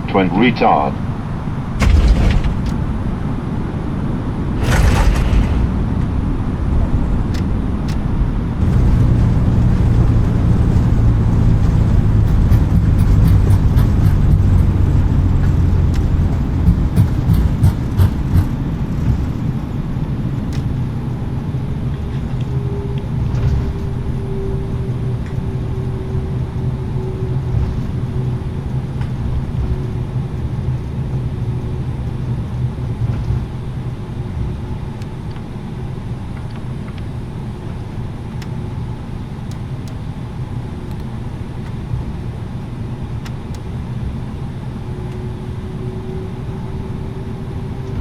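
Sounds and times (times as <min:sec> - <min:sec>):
steady engine whine: 0:00.0 - 0:48.0
loud low rumble: 0:01.6 - 0:20.0
heavy landing thump: 0:01.8 - 0:03.3, 0:04.5 - 0:07.8.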